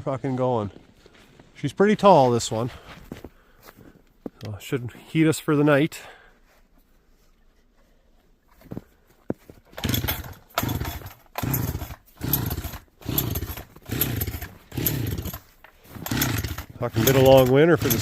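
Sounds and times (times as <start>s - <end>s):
chainsaw starter cord pulls: 9.7s - 18.0s.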